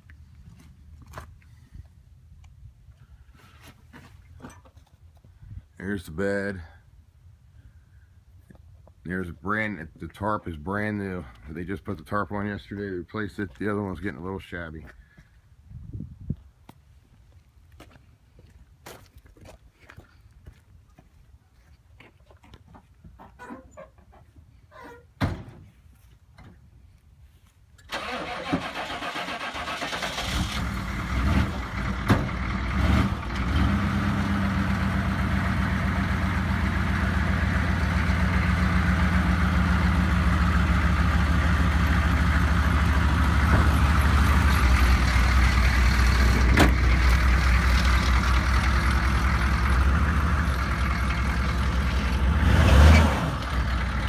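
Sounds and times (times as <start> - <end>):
pickup engine starting and idling: 27.8 - 54.0.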